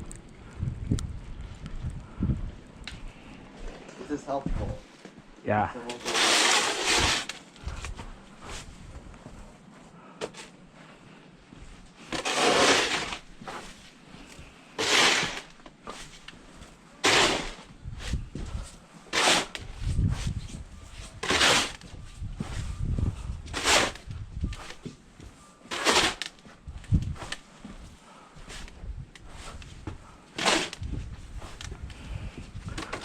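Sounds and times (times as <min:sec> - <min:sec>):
snow shovel scraping snow: 0:05.9 - 0:07.5, 0:12.0 - 0:13.9, 0:14.8 - 0:16.2, 0:17.0 - 0:18.2, 0:19.1 - 0:19.7, 0:21.1 - 0:21.8, 0:23.5 - 0:24.1, 0:25.7 - 0:26.4, 0:30.3 - 0:30.8.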